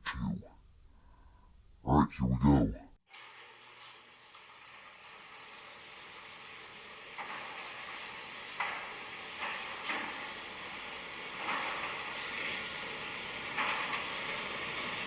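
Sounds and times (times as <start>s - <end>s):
garage door opener running: 3.1s - 15.0s.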